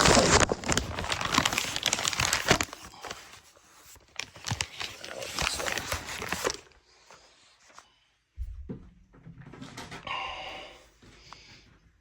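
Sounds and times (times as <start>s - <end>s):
plastic rustling and crinkling: 0.0s - 7.9s.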